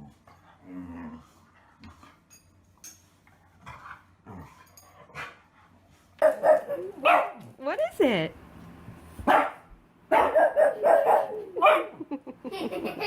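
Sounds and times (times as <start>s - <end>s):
dog barking: 6.2s - 7.4s, 9.2s - 12.0s.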